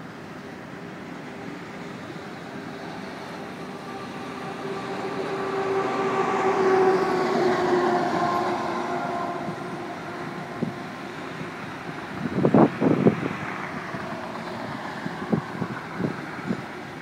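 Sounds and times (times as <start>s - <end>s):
freight cars rolling past: 0.0s - 17.0s.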